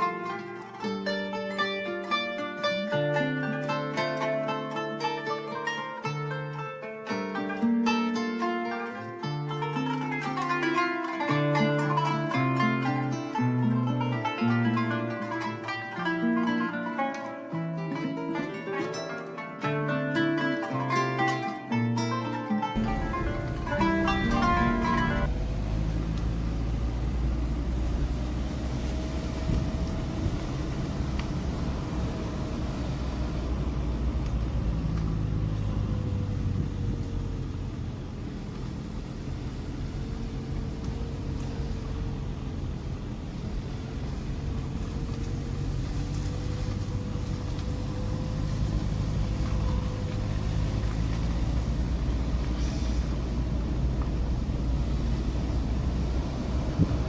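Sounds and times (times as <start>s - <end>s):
road noise: 0.0s - 57.0s
vehicle engine low rumble: 22.7s - 57.0s
brief hiss: 52.5s - 53.3s.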